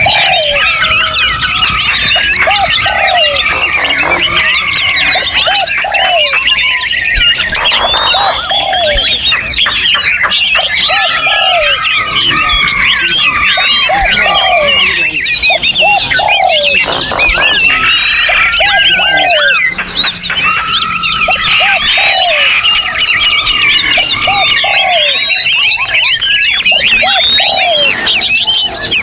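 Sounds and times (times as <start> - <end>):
low hooting bird note: 0.0 - 9.2
chorus of songbirds singing: 0.0 - 29.0.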